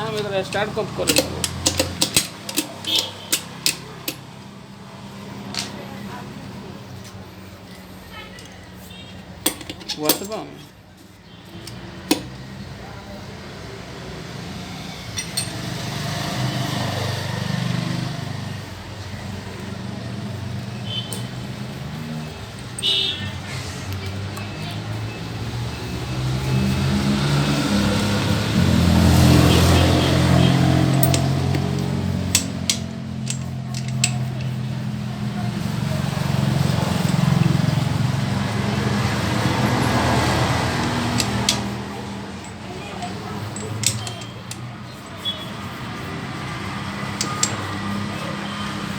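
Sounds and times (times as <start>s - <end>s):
sharp clicks: 0.5s - 4.3s, 39.5s - 44.7s.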